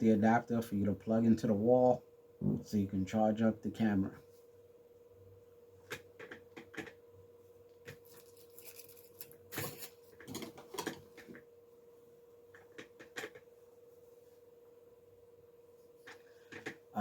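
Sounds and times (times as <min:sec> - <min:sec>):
faint steady hum: 0:00.0 - 0:17.0
packaging handling clicks and rustles: 0:07.9 - 0:11.3.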